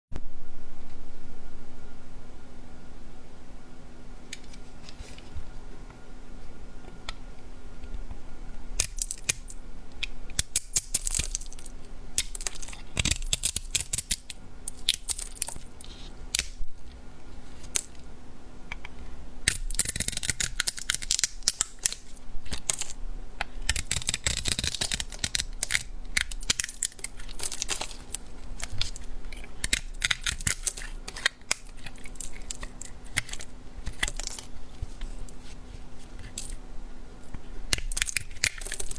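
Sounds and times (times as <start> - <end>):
blade cutting bar soap: 18.7 - 36.6, 37.7 - 38.9.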